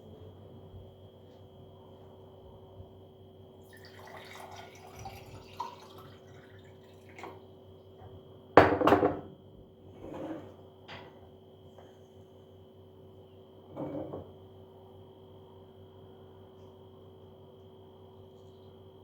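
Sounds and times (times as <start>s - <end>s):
faint steady hum: 0.0s - 19.0s
dishes and glassware clinking: 13.7s - 14.3s.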